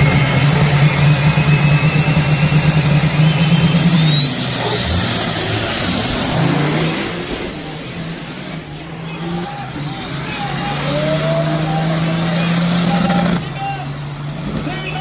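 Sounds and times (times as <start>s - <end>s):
thin high whine: 0.0s - 11.4s
racing truck engine accelerating: 0.0s - 15.0s.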